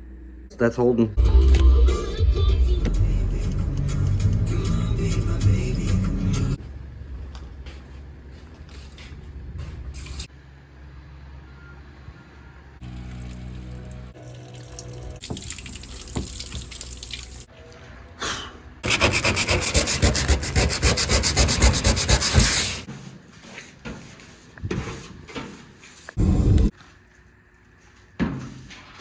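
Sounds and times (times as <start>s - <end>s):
rapid rubbing strokes: 18.8s - 22.9s.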